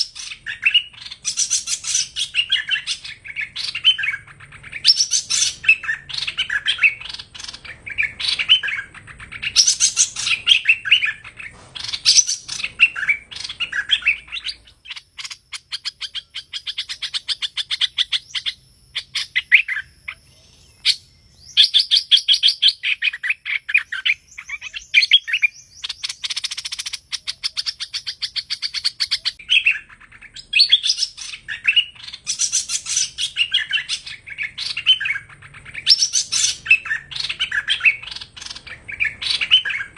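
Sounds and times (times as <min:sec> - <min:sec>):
bird song with trills: 0:00.0 - 0:39.9.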